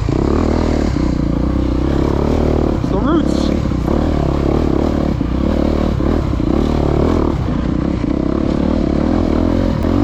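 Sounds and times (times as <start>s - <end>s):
dirt bike engine: 0.0s - 10.0s.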